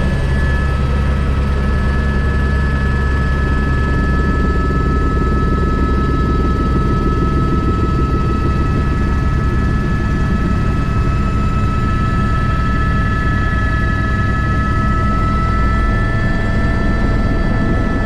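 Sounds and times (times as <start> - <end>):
high-pitched whines: 0.0 - 5.0
helicopter rotor and engine drone: 0.0 - 18.0.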